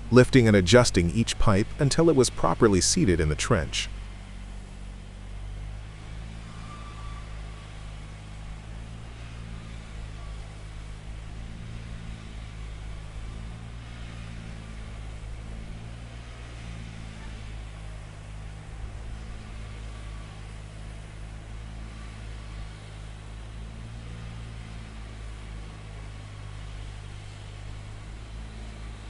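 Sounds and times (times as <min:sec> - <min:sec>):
machine engine idling: 0:00.0 - 0:29.0.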